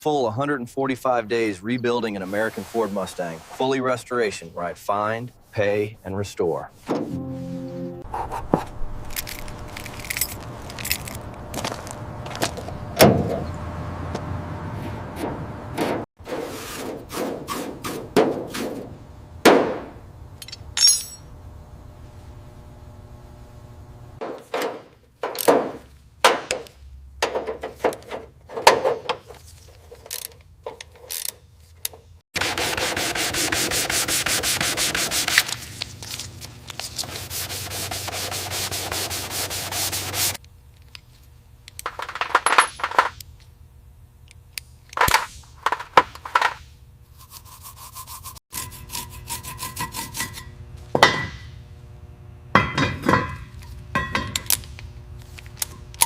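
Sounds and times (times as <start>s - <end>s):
sanding-like rubbing: 2.2s - 3.8s, 32.4s - 35.5s, 36.9s - 40.4s, 47.2s - 50.4s.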